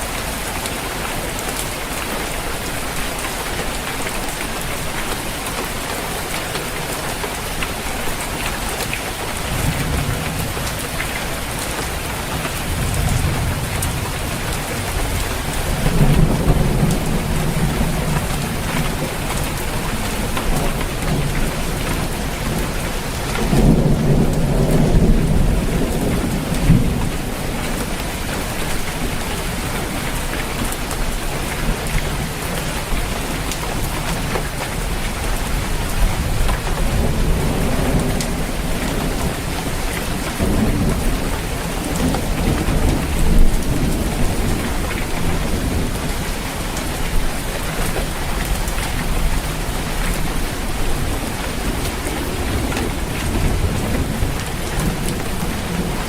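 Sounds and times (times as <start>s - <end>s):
rain pattering on a roof: 0.0s - 56.0s
thunder rumbling: 9.2s - 29.8s, 35.5s - 56.0s.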